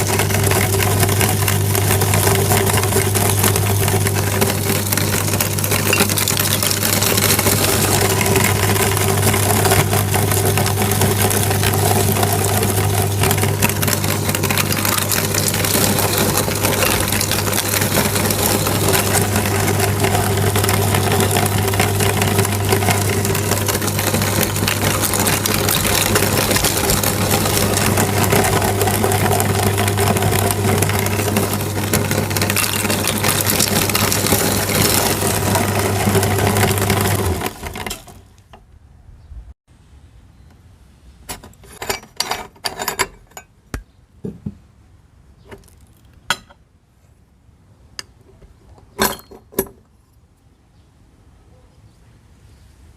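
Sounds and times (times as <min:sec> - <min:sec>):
electric meat grinder motor hum: 0:00.0 - 0:38.3
small crackles of grinding: 0:00.0 - 0:38.6, 0:45.4 - 0:46.4.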